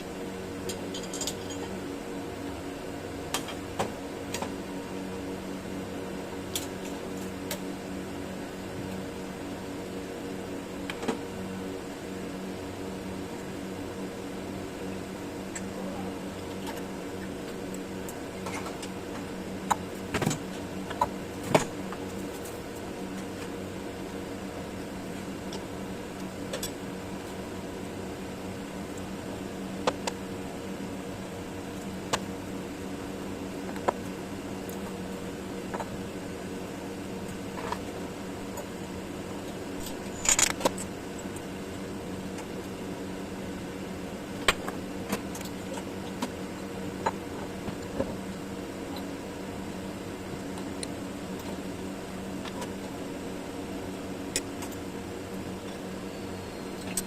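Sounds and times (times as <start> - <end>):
milling machine humming: 0.0 - 57.0.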